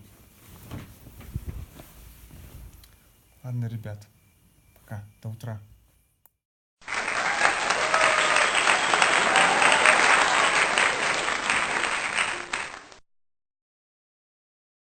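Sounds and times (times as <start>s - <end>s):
crowd applauding: 6.8s - 13.0s.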